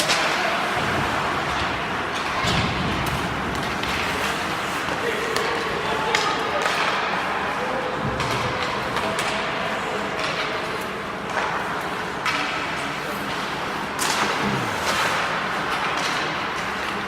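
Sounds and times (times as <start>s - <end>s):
crowd chatter: 12.1s - 15.8s.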